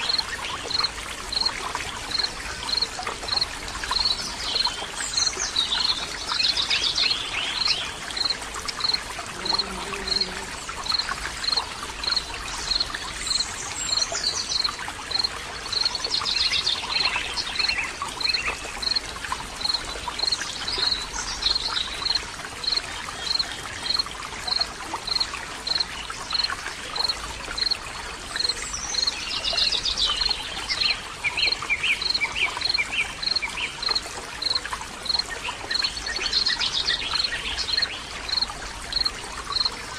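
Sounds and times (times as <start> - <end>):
running water stream: 0.0 - 39.9
birds singing: 2.1 - 19.0.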